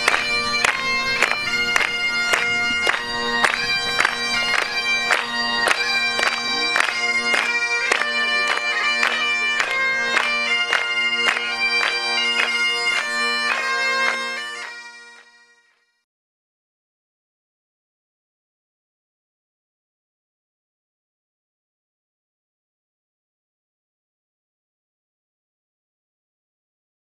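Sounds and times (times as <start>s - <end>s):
bagpipes playing a tune: 0.0s - 16.0s.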